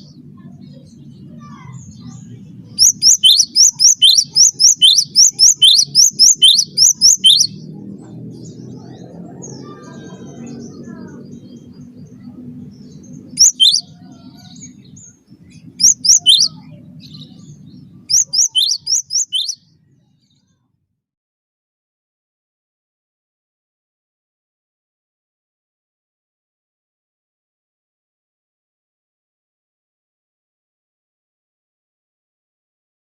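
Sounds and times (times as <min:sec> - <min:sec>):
low steady hum: 0:00.0 - 0:19.1
bird singing high chirps: 0:00.0 - 0:20.6.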